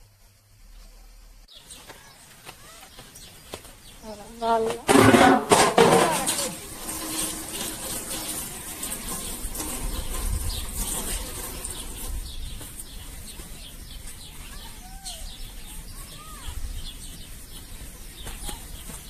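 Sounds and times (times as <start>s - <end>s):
birds chirping: 0.0s - 19.0s
rising-and-falling bird calls: 11.7s - 19.0s.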